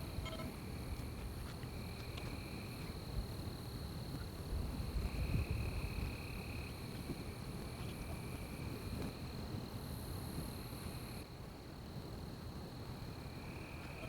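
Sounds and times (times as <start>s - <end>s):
insect lower buzzing call: 0.0s - 1.1s, 13.2s - 14.0s
insects high-pitched trill: 0.0s - 11.3s, 12.6s - 14.0s.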